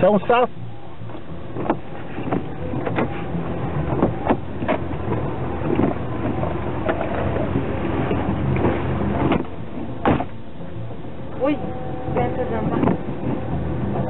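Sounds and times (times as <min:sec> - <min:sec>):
vehicle engine running: 0:00.0 - 0:14.0
sharp knocks: 0:09.3 - 0:10.4.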